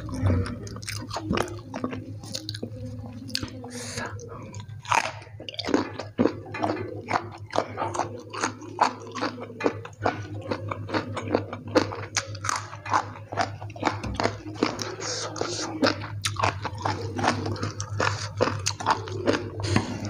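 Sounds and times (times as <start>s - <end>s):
steady low hum: 0.0s - 20.0s
crunching raw vegetables: 4.3s - 20.0s.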